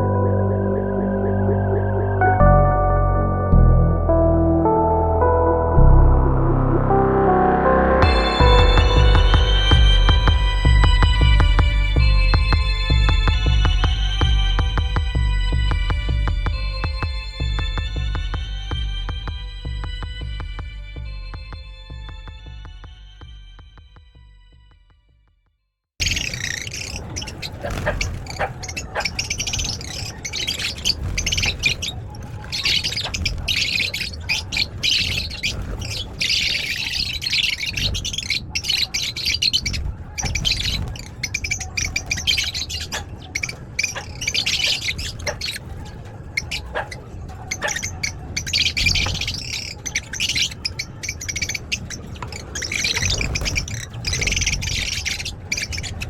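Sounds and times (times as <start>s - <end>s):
low rumble: 0.0s - 24.7s
lovebirds chattering and squawking: 26.0s - 56.0s.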